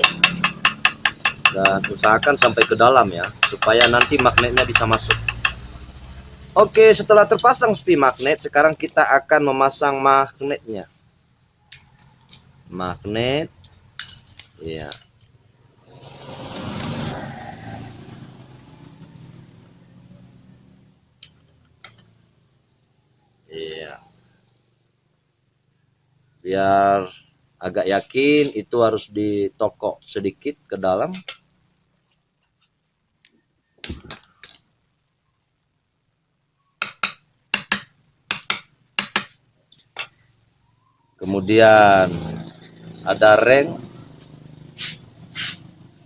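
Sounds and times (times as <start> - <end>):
hammer clinking on metal: 0.0 - 5.7, 14.0 - 15.1, 36.8 - 39.4
vehicle passing by: 1.7 - 8.6, 15.7 - 21.0, 41.2 - 46.0.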